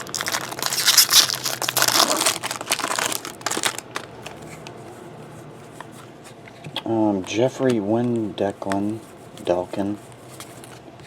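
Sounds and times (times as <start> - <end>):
wrapper crinkling and crumpling: 0.0 - 4.5.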